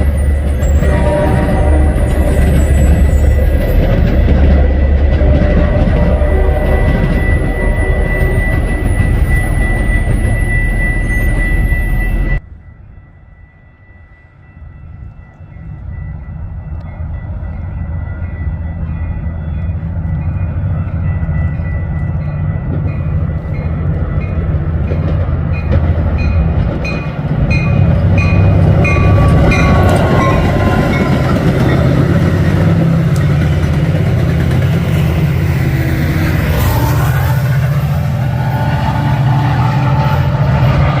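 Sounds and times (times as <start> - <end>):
train engine rumble: 0.0 - 41.0
high ringing: 6.0 - 24.4.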